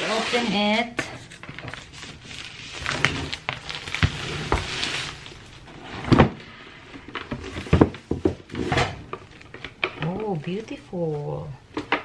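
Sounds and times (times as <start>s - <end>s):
cardboard packaging rustling: 0.0s - 12.0s
plastic shrink wrap crinkling: 0.0s - 12.0s.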